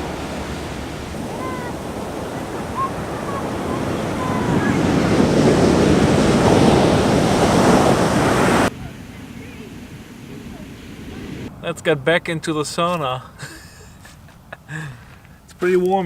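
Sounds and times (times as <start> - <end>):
wind on microphone: 0.0 - 11.6
ocean surf breaking: 0.0 - 16.0.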